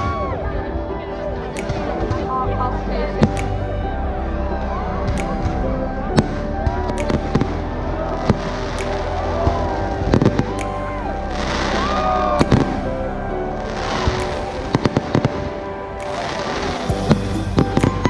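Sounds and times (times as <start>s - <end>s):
background music: 0.0s - 18.0s
fireworks crackling: 6.2s - 18.0s.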